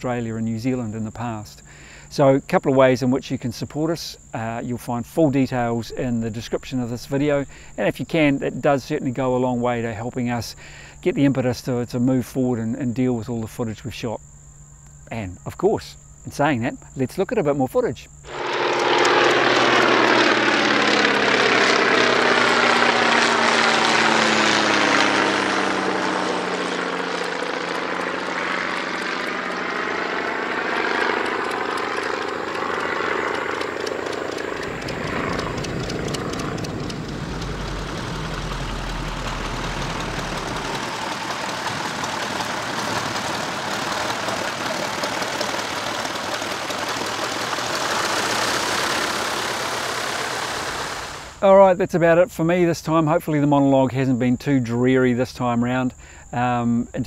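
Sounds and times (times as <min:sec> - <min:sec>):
propeller aircraft passing overhead: 0:04.2 - 0:11.0, 0:18.2 - 0:51.4
radial engine drone: 0:18.2 - 0:51.4
rushing air: 0:18.3 - 0:51.4.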